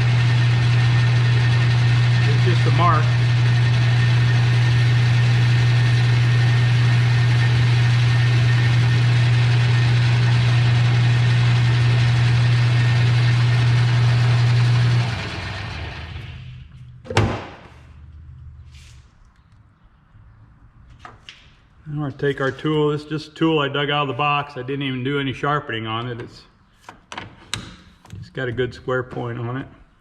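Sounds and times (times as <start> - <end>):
metal lathe humming: 0.0 - 16.7.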